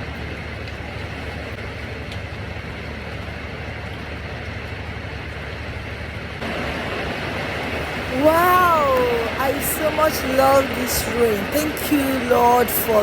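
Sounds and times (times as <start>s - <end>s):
heavy rain falling: 6.4s - 13.0s.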